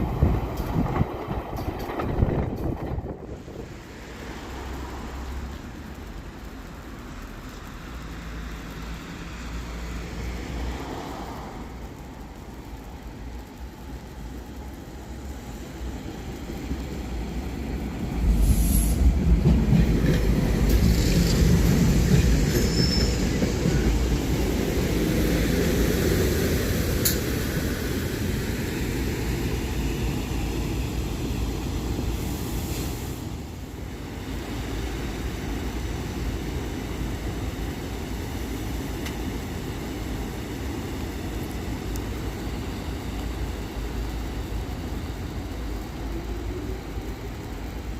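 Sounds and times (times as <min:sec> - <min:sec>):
train wheels rumbling on rail: 0:00.0 - 0:47.9
high-pitched wheel squeal: 0:22.6 - 0:23.4.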